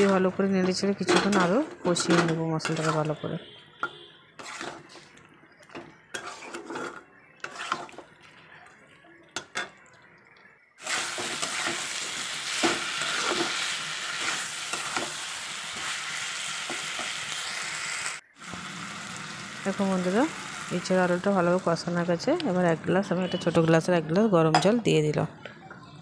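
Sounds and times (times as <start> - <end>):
metal spatula scraping a pan: 1.1 - 5.2, 6.0 - 8.2, 10.8 - 17.2
loud sizzle of frying in oil: 10.8 - 21.9.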